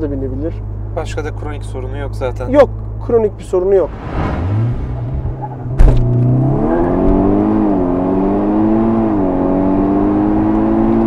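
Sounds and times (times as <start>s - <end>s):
gear upshifts dropping engine pitch: 0.6s - 11.0s
car engine accelerating hard: 3.6s - 11.0s.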